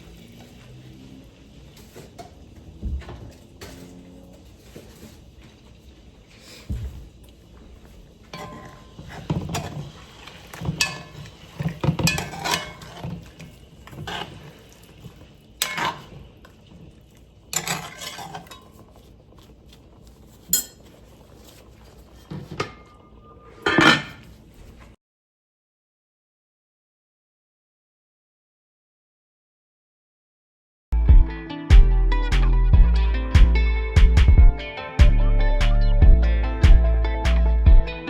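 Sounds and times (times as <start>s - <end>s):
pots and dishes clattering: 8.2s - 16.6s, 17.4s - 19.1s, 20.4s - 24.4s.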